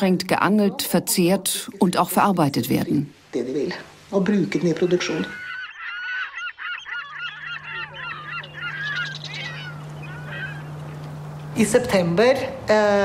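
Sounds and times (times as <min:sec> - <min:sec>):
steady low hum: 0:00.0 - 0:13.0
flock of birds calling: 0:04.6 - 0:11.5.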